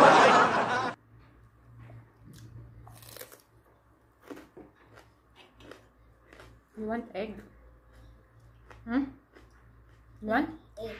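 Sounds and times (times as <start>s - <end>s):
crisp food crunching: 2.4s - 3.6s, 4.2s - 6.6s.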